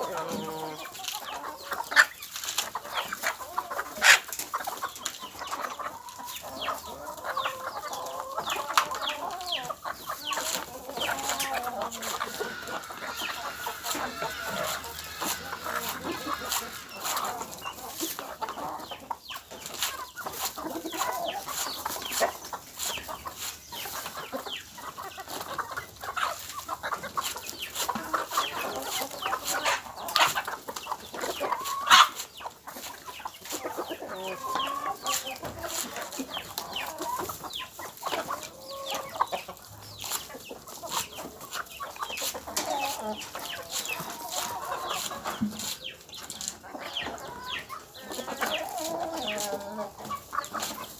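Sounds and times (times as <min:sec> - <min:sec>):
chickens clucking: 0:00.0 - 0:50.9.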